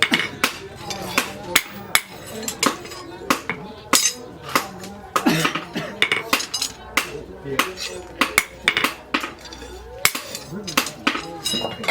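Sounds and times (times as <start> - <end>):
hammer striking steel: 0.0 - 11.9.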